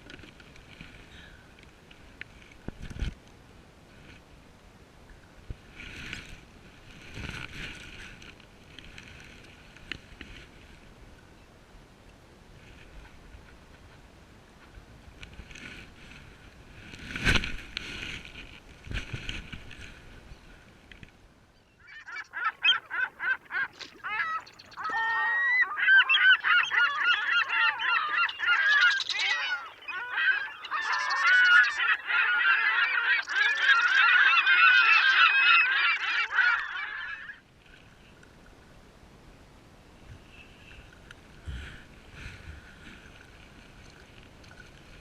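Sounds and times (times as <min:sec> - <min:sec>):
flock of birds calling: 0:21.8 - 0:37.4.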